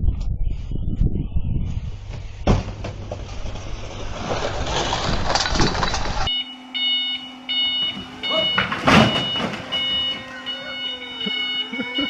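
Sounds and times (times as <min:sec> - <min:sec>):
vehicle road noise: 0:01.7 - 0:06.3
hard thud: 0:02.4 - 0:03.3
rattles and clicks: 0:02.6 - 0:06.3.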